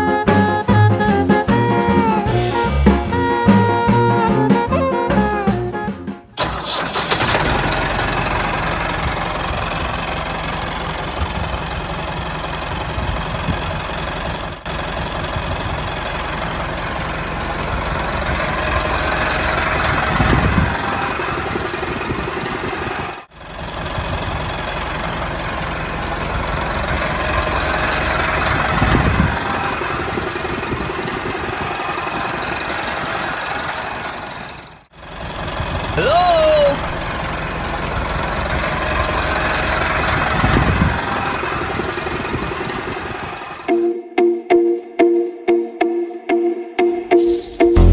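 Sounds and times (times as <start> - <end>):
small engine knocking idle: 6.4 - 36.0, 37.0 - 43.7.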